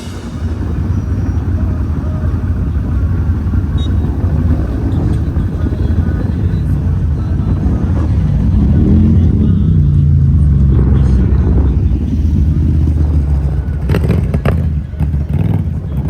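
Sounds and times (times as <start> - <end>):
engine rumbling: 0.0 - 16.0.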